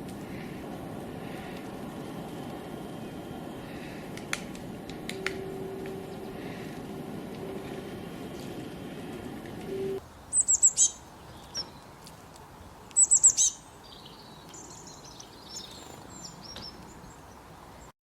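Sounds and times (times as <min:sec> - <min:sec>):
low hum: 0:00.0 - 0:10.0
small bird singing: 0:09.7 - 0:12.1, 0:12.9 - 0:17.9.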